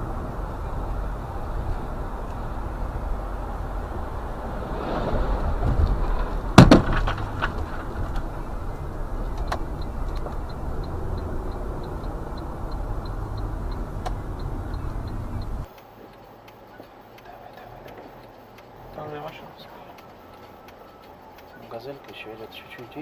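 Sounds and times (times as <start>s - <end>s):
car engine and road noise: 0.0s - 23.0s
car crash impact: 4.4s - 8.6s
light regular ticking: 7.1s - 23.0s.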